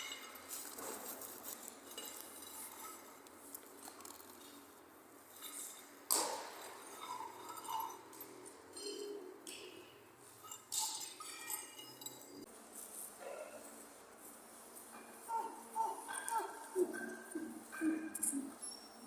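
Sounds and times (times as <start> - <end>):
hard objects clinking and tapping: 0.0 - 4.7, 5.4 - 12.5.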